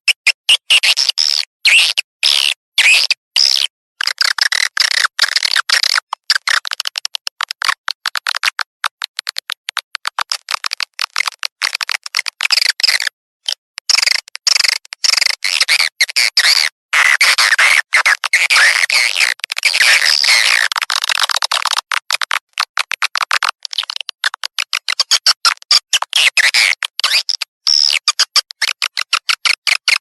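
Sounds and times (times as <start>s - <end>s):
rapid bird clicks: 4.0s - 15.6s, 20.5s - 27.5s.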